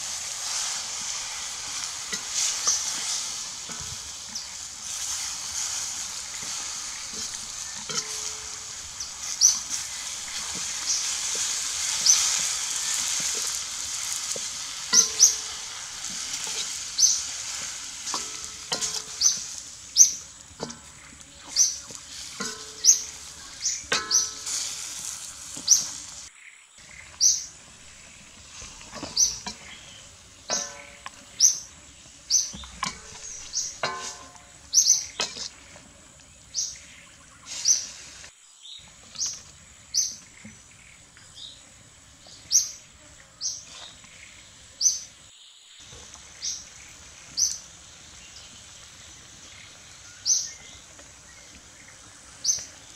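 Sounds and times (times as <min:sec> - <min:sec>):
bird chirping: 0:02.4 - 0:13.6, 0:14.8 - 0:17.4, 0:18.2 - 0:24.8, 0:25.6 - 0:35.7.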